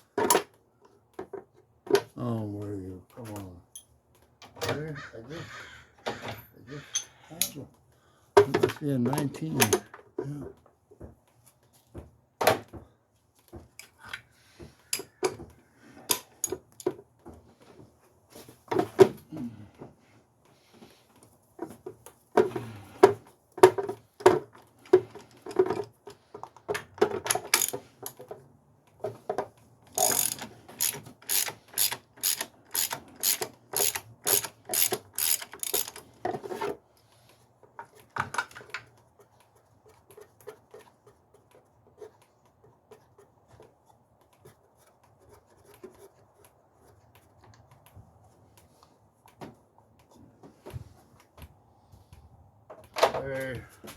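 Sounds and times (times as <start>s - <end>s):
ratchet wrench clicking: 27.5s - 27.7s, 30.0s - 36.0s.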